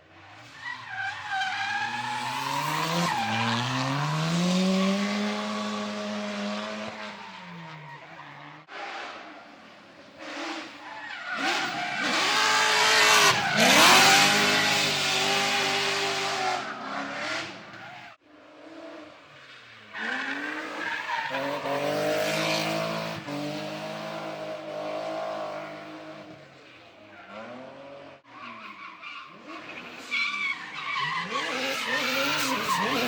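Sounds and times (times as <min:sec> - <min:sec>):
car engine revving hard: 0:11.4 - 0:16.6, 0:31.2 - 0:33.0
tyres screeching: 0:30.1 - 0:33.0.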